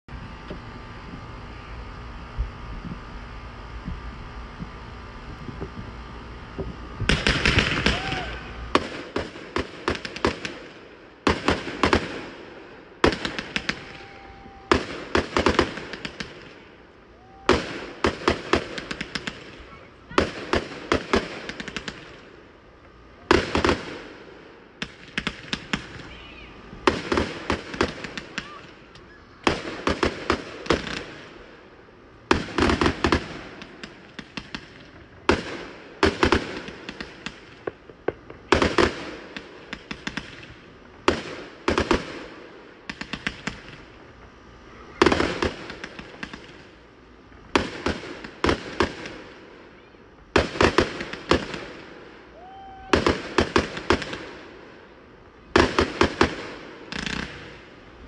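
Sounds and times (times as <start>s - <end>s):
firework bangs and crackling: 0.1s - 58.0s
firework launches: 5.5s - 22.2s, 55.6s - 57.8s.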